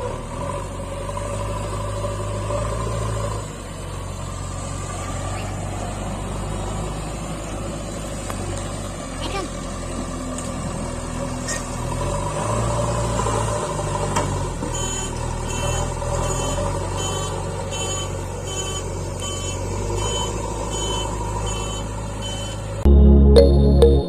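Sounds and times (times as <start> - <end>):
reversing alarm beeping: 14.8 - 24.0.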